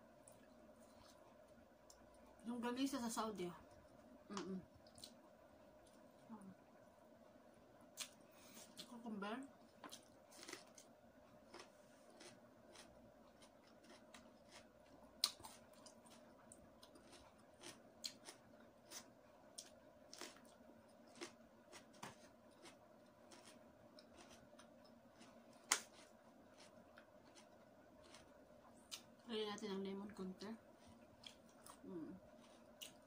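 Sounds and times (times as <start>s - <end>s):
faint steady hum: 0.0s - 33.0s
cucumber crunching and chewing: 9.7s - 29.2s, 30.9s - 33.0s.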